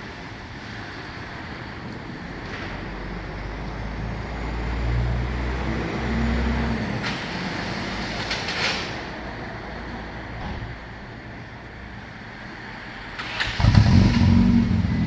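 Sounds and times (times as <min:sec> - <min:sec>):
car engine exhaust note: 0:13.6 - 0:15.0.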